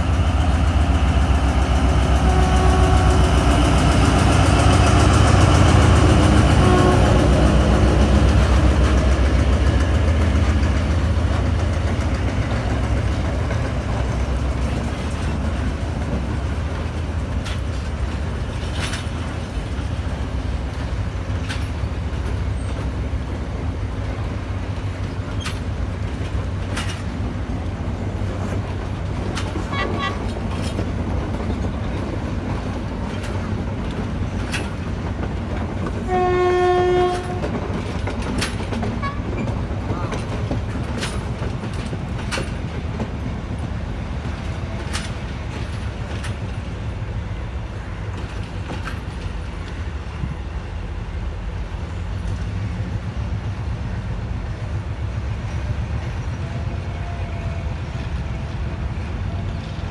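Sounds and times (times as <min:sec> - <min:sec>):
train coaches rumbling: 0:00.0 - 0:59.9
wheels clicking over rail joints: 0:00.4 - 0:50.4
train horn blast: 0:02.1 - 0:03.4, 0:06.0 - 0:08.8, 0:36.0 - 0:37.5, 0:39.0 - 0:39.3.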